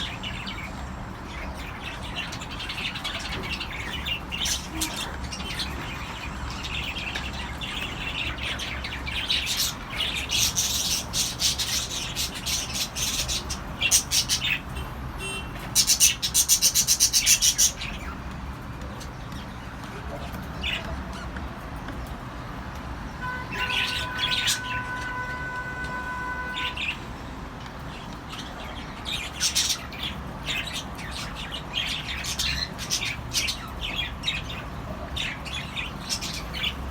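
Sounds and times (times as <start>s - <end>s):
cockatiels chirping: 0.0s - 18.2s, 23.5s - 25.1s, 28.1s - 36.9s.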